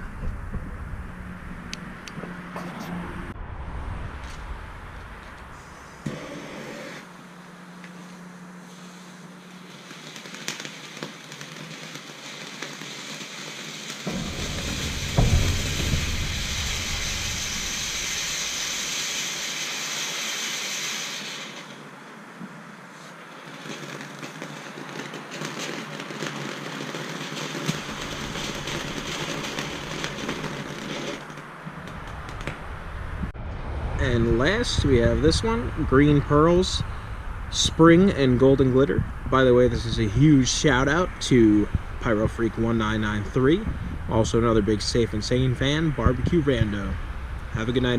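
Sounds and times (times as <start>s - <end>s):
low rumbling: 0.0s - 6.1s, 14.1s - 19.2s, 31.4s - 47.9s
firework fountain hissing: 5.4s - 7.3s, 8.0s - 32.8s, 34.3s - 47.9s
crackly glitter firework: 8.6s - 22.1s, 22.9s - 32.9s, 34.0s - 47.9s
small pops: 9.8s - 13.2s.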